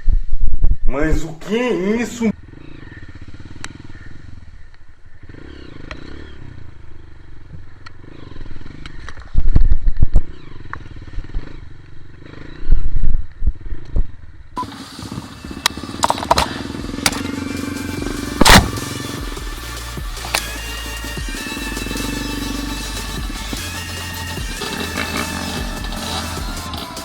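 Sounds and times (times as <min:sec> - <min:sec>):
dirt bike engine revving: 0:02.2 - 0:27.0
loud low bursts: 0:15.3 - 0:24.8.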